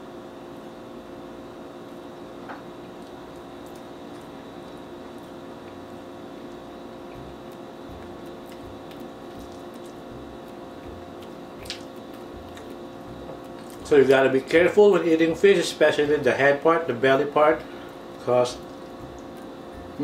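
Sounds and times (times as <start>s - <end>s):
low room hum: 0.0s - 20.0s
close chewing: 3.0s - 13.9s.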